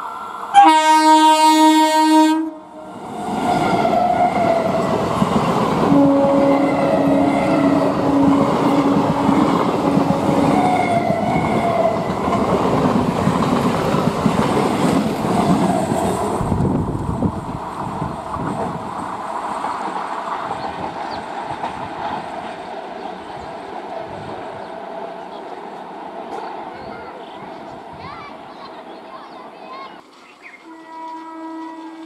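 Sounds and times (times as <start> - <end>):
train horn blast: 0.5 - 4.8, 5.8 - 12.1, 30.6 - 32.0
train wheels clattering on rails: 3.3 - 28.2.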